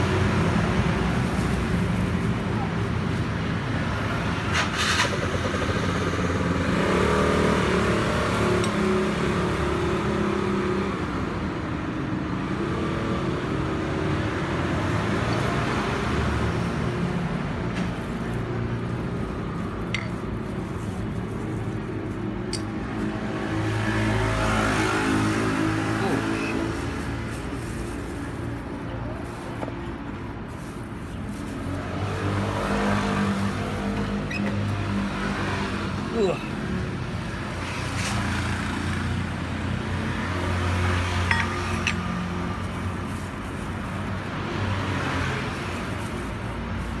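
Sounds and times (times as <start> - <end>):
vehicle engine running: 0.0 - 9.8.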